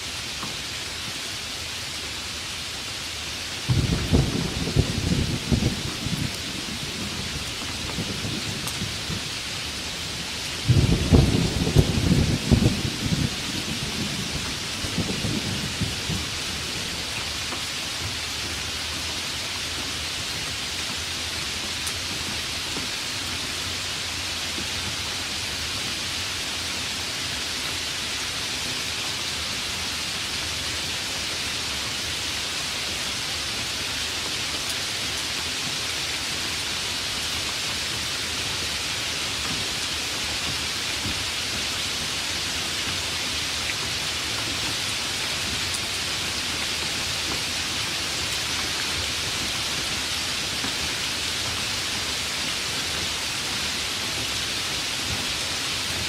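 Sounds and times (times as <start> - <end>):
heavy rain: 0.0 - 56.0
thunder rumble: 3.7 - 9.6, 10.2 - 17.1.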